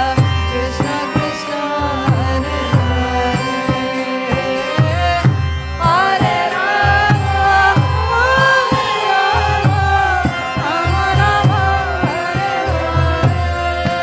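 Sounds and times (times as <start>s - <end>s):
person singing ornamented melody: 0.0s - 14.0s
steady held drone tones: 0.8s - 14.0s
hand drum beating: 4.9s - 14.0s.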